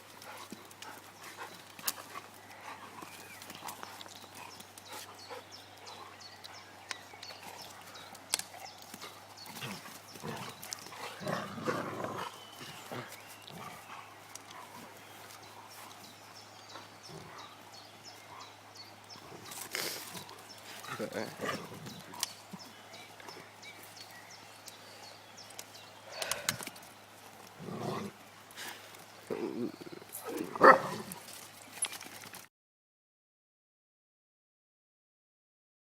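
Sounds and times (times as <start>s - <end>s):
dogs scuffling: 0.0s - 17.6s, 30.2s - 32.5s.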